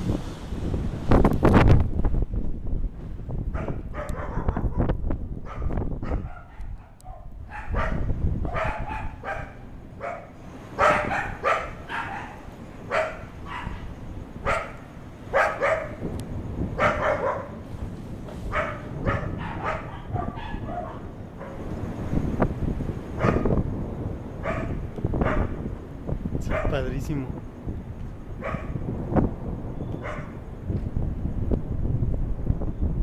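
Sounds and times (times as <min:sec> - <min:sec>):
low rumbling noise: 0:00.0 - 0:06.4, 0:07.2 - 0:33.0
dog barking: 0:03.6 - 0:04.9, 0:05.5 - 0:16.0, 0:16.8 - 0:17.6, 0:18.5 - 0:21.6, 0:23.2 - 0:23.5, 0:24.4 - 0:25.5, 0:26.5 - 0:26.8, 0:28.4 - 0:28.8, 0:30.0 - 0:30.4.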